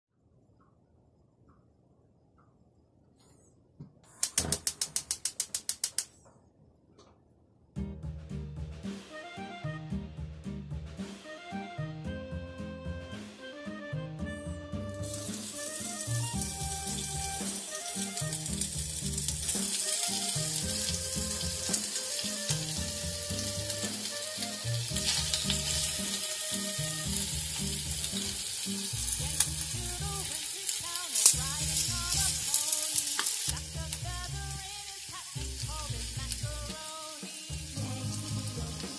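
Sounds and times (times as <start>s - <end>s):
background music with bass: 7.8s - 30.4s, 31.4s - 32.6s, 33.5s - 38.9s
meat sizzling in a pot: 15.0s - 38.9s.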